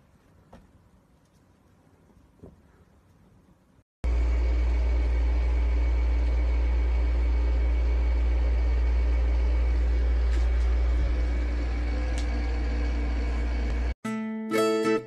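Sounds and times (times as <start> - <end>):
low mechanical hum: 0.0 - 14.0
plucked-string music: 14.0 - 15.0.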